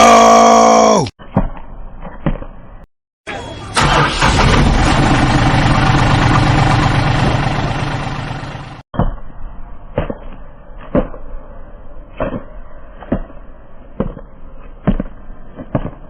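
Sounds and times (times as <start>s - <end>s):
engine running: 3.7s - 8.8s.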